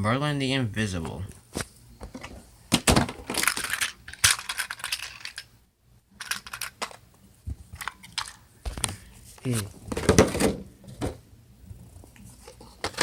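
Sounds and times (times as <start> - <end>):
plastic toy trains clattering: 2.1 - 5.5, 6.2 - 7.0, 9.9 - 11.2, 12.8 - 13.0.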